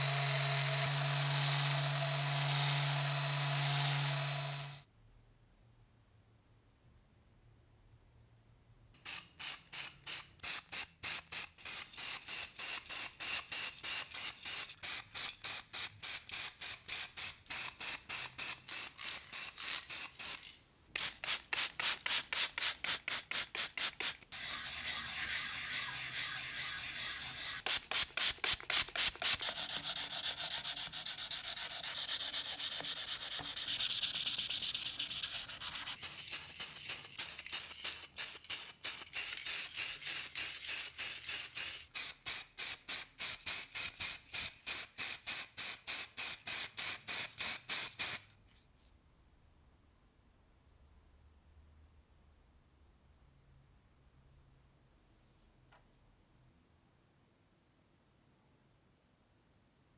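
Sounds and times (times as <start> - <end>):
hand sanding strokes: 22.2 - 36.4.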